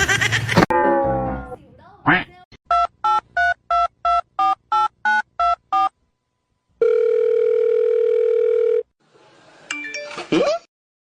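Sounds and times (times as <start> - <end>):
steady telephone tone: 6.8 - 8.9.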